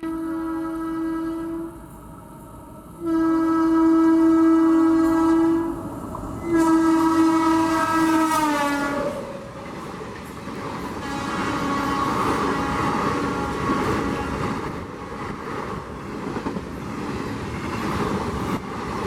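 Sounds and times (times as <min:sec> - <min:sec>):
locomotive air horn blasts: 0:00.0 - 0:09.6, 0:10.9 - 0:15.8
train rushing past: 0:00.0 - 0:19.0.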